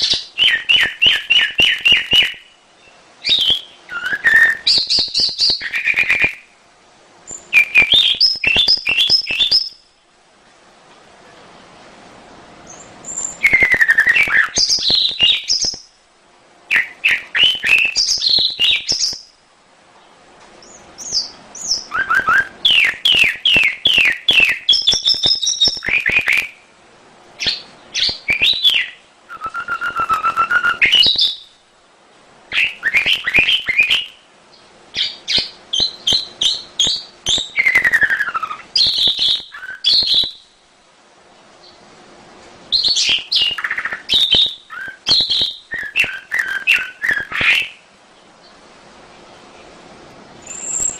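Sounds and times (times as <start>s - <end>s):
canary singing: 0.0s - 6.5s, 7.3s - 10.0s, 12.6s - 16.0s, 16.7s - 19.4s, 20.6s - 26.7s, 27.4s - 31.6s, 32.5s - 40.6s, 42.7s - 48.6s, 50.4s - 50.9s.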